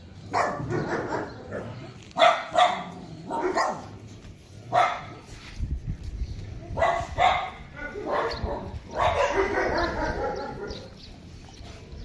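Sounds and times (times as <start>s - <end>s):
dogs barking: 0.2s - 4.0s, 4.6s - 5.3s, 6.7s - 11.2s.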